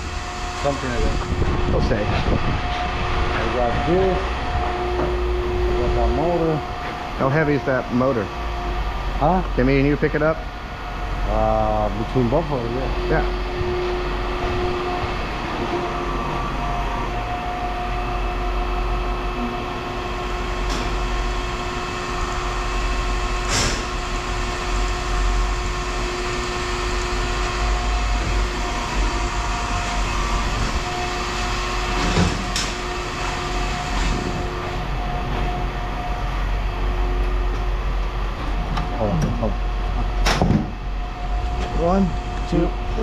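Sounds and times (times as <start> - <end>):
machinery droning: 0.0 - 43.0.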